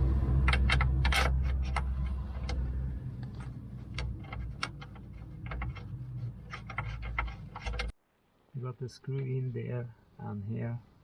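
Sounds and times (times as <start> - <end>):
low rumble: 0.0 - 6.7.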